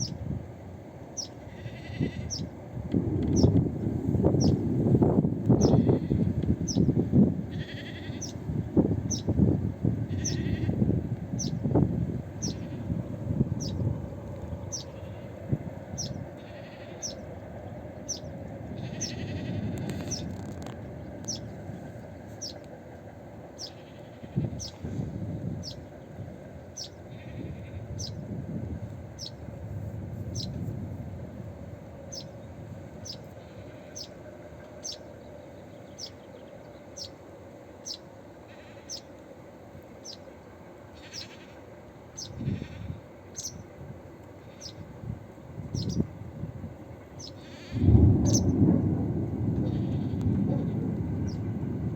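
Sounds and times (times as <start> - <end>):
low rumble: 2.8 - 7.0, 47.8 - 51.9.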